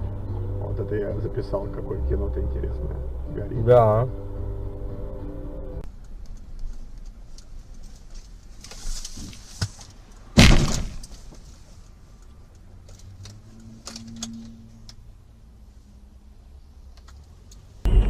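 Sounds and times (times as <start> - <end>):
road and engine rumble: 0.0 - 18.0
collision bang: 10.4 - 11.1.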